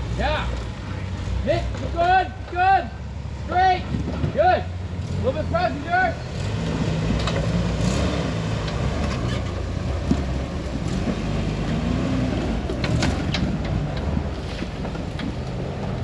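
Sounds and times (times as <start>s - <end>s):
engine running at low revs: 0.0s - 16.0s
tires knocking on rock: 8.6s - 16.0s.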